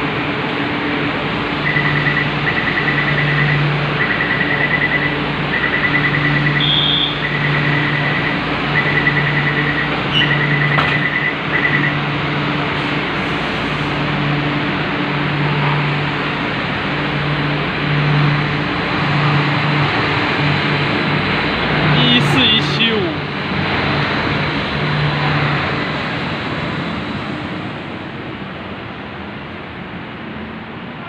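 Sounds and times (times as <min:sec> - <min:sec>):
train and station hum: 0:00.0 - 0:31.0
rapid pulsed warning beeps: 0:01.6 - 0:12.0.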